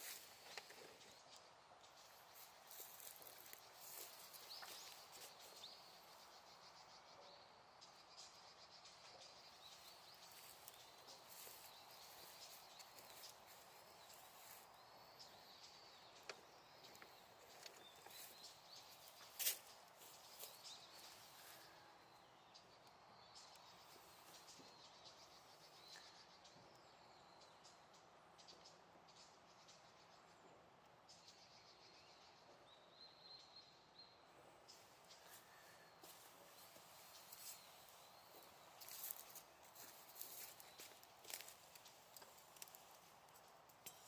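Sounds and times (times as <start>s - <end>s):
faint bird chirps: 31.2s - 43.0s.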